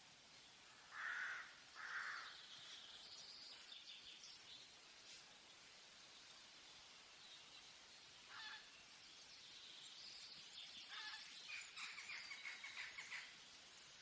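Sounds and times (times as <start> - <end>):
forest background hiss: 0.0 - 14.0
faint bird calls: 0.6 - 3.7, 8.2 - 8.8, 10.6 - 13.4.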